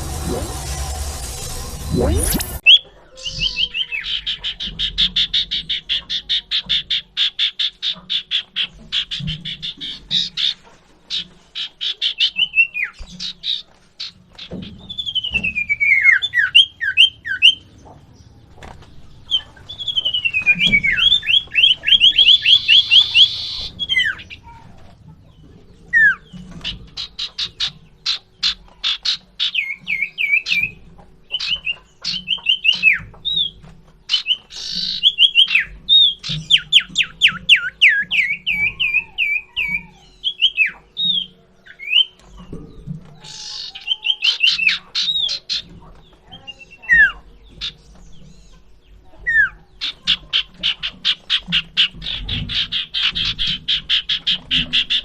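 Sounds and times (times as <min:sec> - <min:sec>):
harsh rasping bird calls: 0:00.0 - 0:55.0
bird whistling and trilling: 0:11.1 - 0:17.7, 0:19.3 - 0:24.5, 0:31.4 - 0:42.2.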